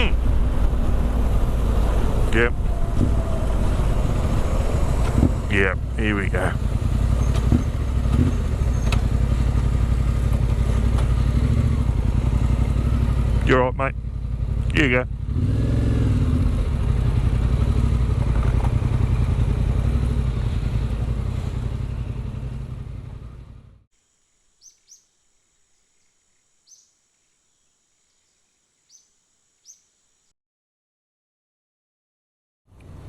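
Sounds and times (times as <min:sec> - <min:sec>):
wind rush: 0:00.0 - 0:05.9
motorcycle engine at speed: 0:00.0 - 0:23.8, 0:32.7 - 0:33.0
faint bird chirps: 0:07.1 - 0:09.0, 0:24.0 - 0:30.3.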